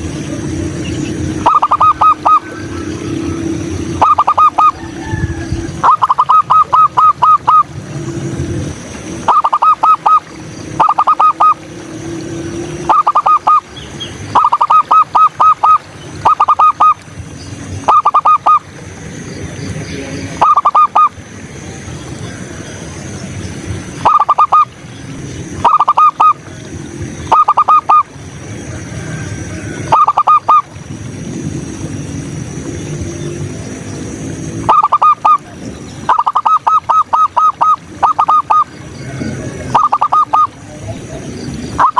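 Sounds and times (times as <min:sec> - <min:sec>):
dove cooing: 0:00.0 - 0:17.0, 0:17.8 - 0:18.7, 0:20.1 - 0:21.2, 0:24.0 - 0:30.8, 0:34.5 - 0:41.9.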